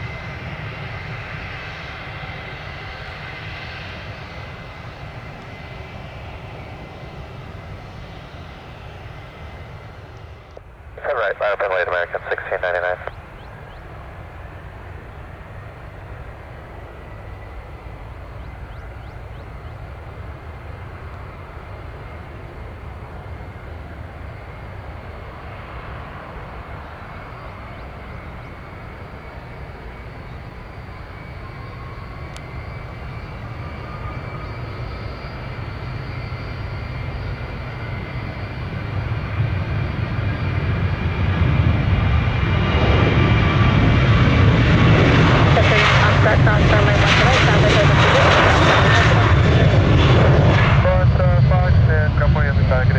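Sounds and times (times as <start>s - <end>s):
jet engines rumbling: 0.0s - 52.9s.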